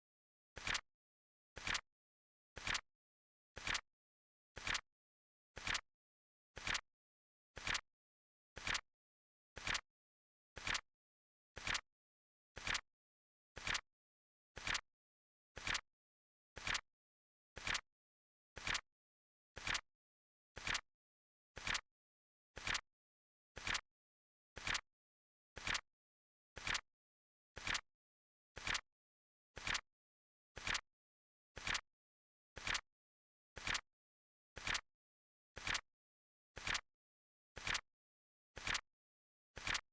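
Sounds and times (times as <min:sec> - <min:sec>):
flip clock timer clicking: 0:29.6 - 0:29.8, 0:30.6 - 0:30.8, 0:31.6 - 0:31.8, 0:32.6 - 0:32.8, 0:33.6 - 0:33.8, 0:34.6 - 0:34.8, 0:35.6 - 0:35.8, 0:36.6 - 0:36.8, 0:37.6 - 0:37.8, 0:39.6 - 0:39.8.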